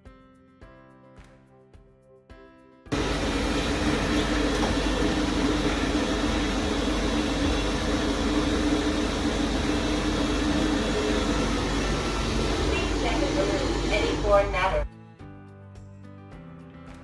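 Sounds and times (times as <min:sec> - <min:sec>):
robot vacuum whirring: 0:02.9 - 0:14.8.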